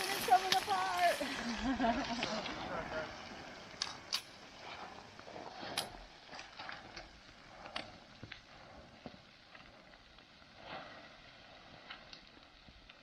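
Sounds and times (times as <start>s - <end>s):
loose rocks knocking underfoot: 0.0s - 8.4s.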